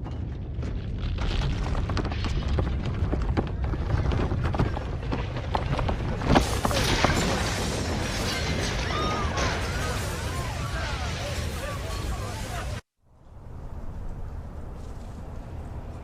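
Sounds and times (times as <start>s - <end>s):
deep earthquake rumble: 0.0s - 10.2s
loud crash: 6.4s - 12.8s.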